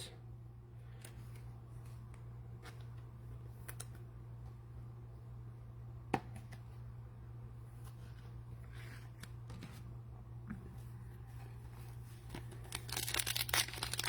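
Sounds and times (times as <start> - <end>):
trading cards and wrapping rustling: 11.2 - 14.0.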